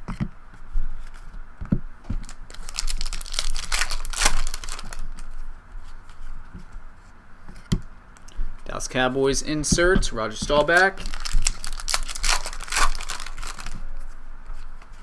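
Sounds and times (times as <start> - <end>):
foil wrapper tearing and crinkling: 2.2 - 5.2, 10.8 - 13.8.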